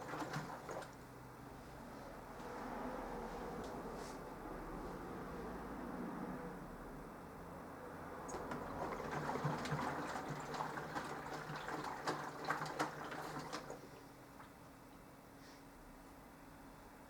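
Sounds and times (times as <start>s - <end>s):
water sloshing in washing machine: 0.0s - 1.5s, 8.2s - 14.8s.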